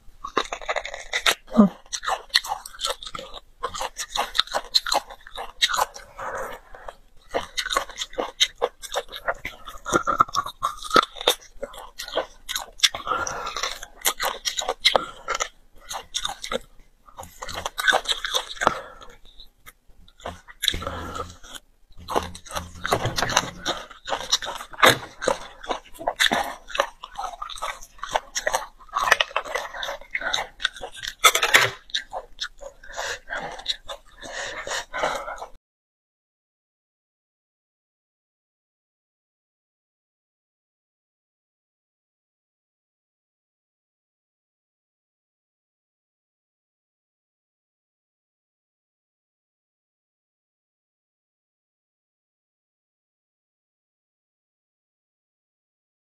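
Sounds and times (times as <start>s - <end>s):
chewing and biting: 0.2s - 35.6s.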